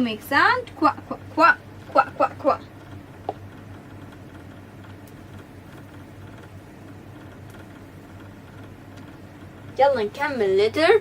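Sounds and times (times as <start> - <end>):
low hum with faint hiss: 0.0 - 11.0
faint clicks: 2.8 - 9.8.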